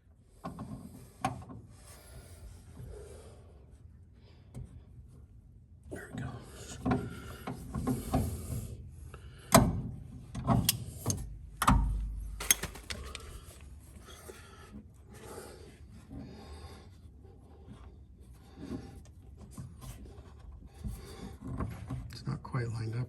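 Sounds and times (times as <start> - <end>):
metal parts and tools knocking: 11.6 - 13.4
rubbing and handling: 12.4 - 13.7.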